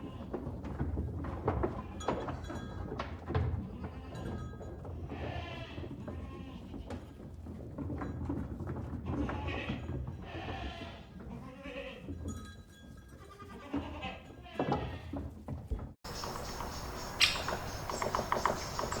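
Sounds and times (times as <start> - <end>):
livestock bleating: 9.2 - 12.0.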